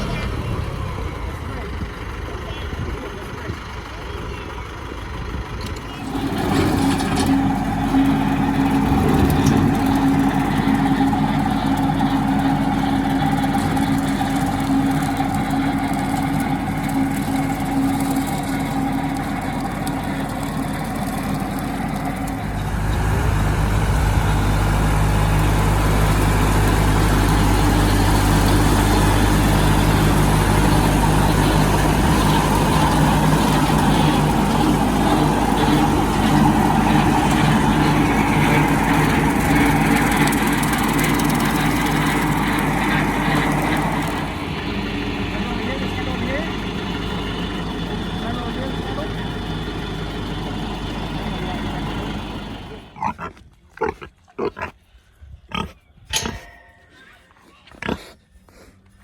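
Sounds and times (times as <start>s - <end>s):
tractor engine running: 0.0s - 53.2s.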